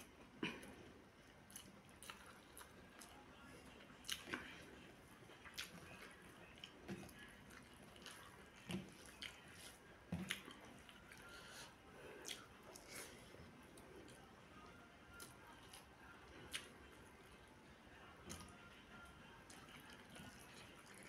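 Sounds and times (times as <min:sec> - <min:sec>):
wet chewing mouth sounds: 0:01.4 - 0:03.2, 0:04.0 - 0:14.2, 0:15.2 - 0:16.8.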